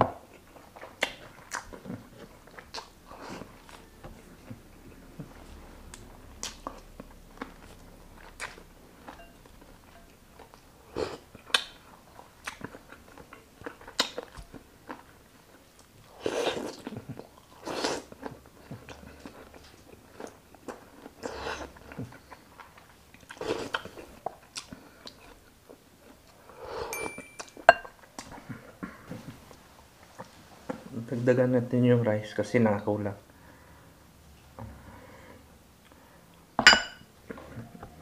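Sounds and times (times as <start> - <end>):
close chewing of food: 0.1 - 30.8
thin ringing tone: 9.1 - 10.2, 26.9 - 27.9.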